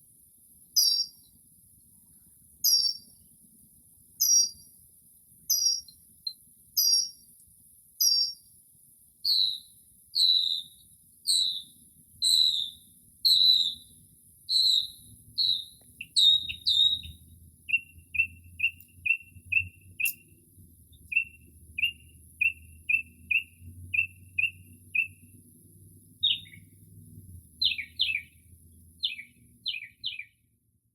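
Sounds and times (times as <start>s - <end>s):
mockingbird singing: 0.8s - 1.3s, 2.6s - 3.1s, 4.2s - 4.7s, 5.5s - 6.0s, 6.8s - 7.2s, 8.0s - 8.5s, 9.2s - 25.4s, 26.2s - 26.8s, 27.5s - 30.4s.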